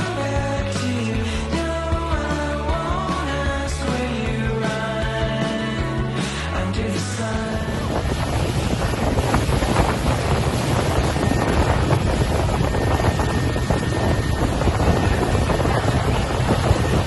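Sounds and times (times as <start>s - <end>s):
sea waves: 6.2s - 17.0s
wind buffeting microphone: 7.5s - 17.0s.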